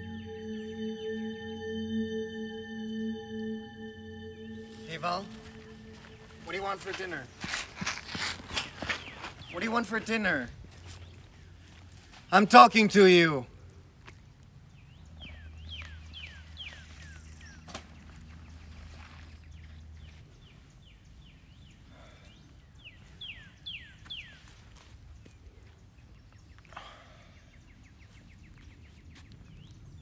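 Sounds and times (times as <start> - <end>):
bird chirping: 0.0 - 10.2.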